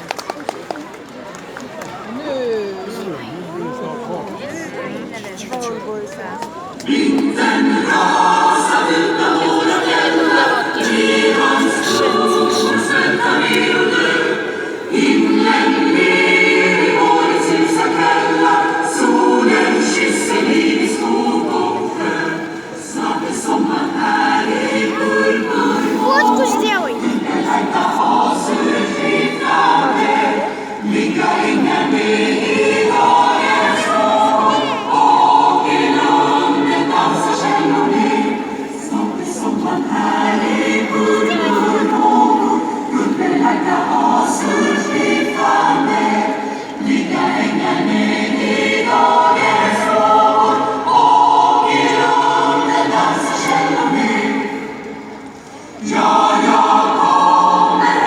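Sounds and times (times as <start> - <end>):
choir singing: 6.8 - 58.0.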